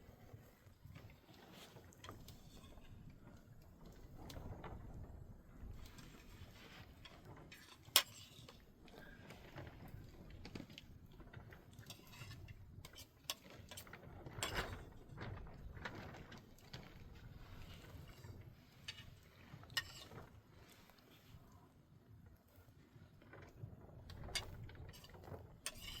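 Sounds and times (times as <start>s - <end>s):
scrape: 0.0s - 3.2s, 5.6s - 10.6s, 11.8s - 14.9s, 16.1s - 21.7s, 24.1s - 26.0s.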